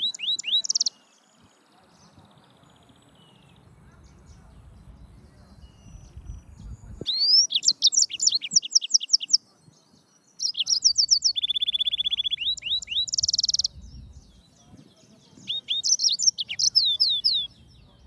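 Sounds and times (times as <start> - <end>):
canary singing: 0.0 - 1.2, 7.0 - 9.4, 10.3 - 18.0
faint low rumble: 2.1 - 7.1, 13.7 - 14.5.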